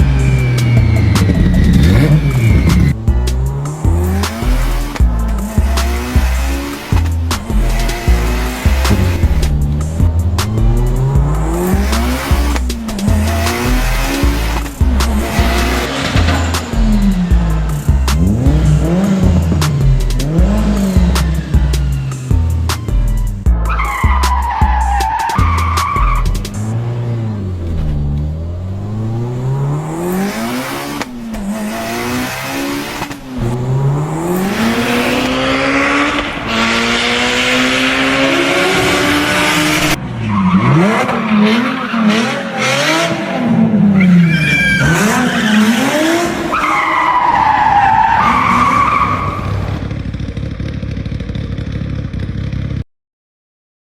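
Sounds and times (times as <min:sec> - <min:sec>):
racing car engine revving: 0:00.0 - 0:50.5
tire squeals: 0:00.0 - 0:50.5.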